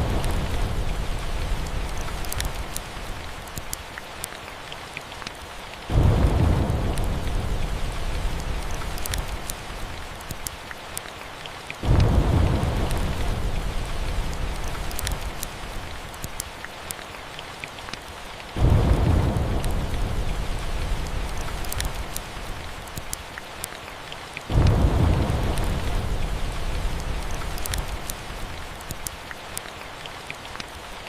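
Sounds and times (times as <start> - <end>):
rolling thunder: 0.0 - 3.0, 5.9 - 10.2, 11.8 - 15.9, 18.6 - 22.7, 24.5 - 28.8
log fire crackling: 0.0 - 17.0, 17.7 - 23.8, 24.4 - 30.8
steady rain: 0.0 - 31.0.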